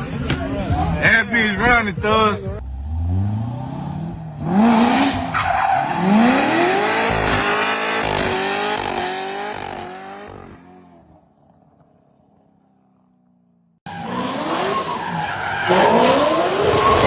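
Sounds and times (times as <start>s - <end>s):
car engine revving hard: 2.6s - 11.0s, 13.9s - 17.0s
tyres screeching: 4.0s - 9.0s, 13.9s - 17.0s.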